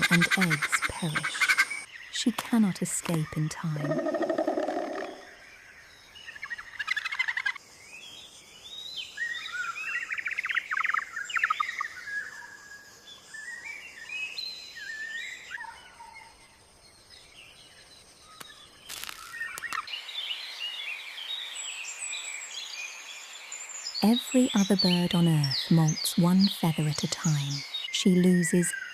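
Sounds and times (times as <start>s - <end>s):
birds warbling chirps: 0.0s - 28.9s
sharp crackle: 18.3s - 19.9s.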